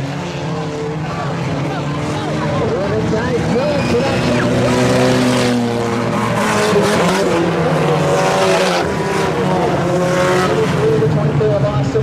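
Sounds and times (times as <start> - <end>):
race car engines running: 0.0 - 12.0.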